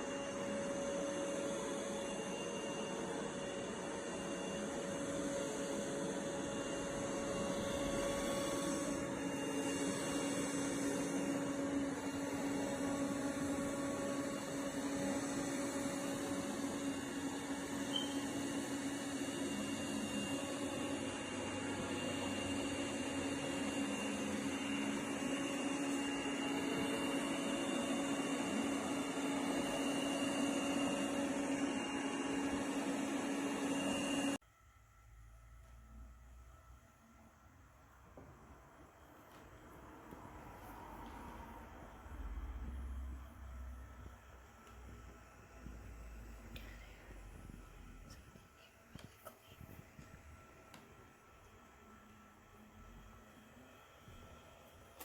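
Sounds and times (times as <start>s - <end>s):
robot vacuum cleaner running: 0.0s - 34.4s.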